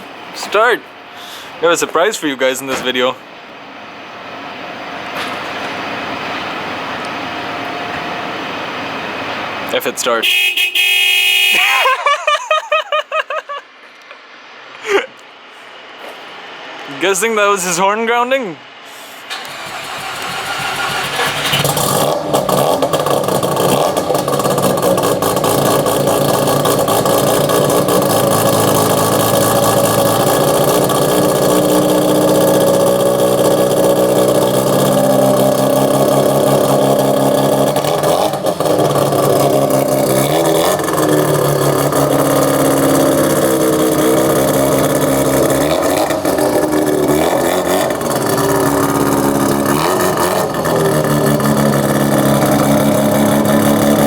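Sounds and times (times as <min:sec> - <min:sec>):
rotary engine idling and revving: 0:19.0 - 0:54.0.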